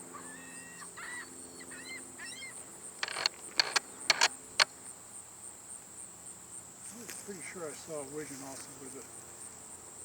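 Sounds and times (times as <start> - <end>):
sharp clicks: 3.0 - 4.8.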